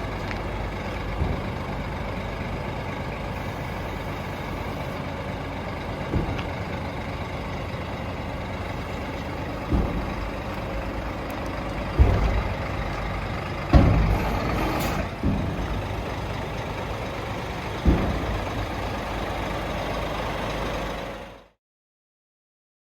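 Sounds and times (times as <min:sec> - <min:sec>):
diesel truck engine running: 0:00.0 - 0:21.6.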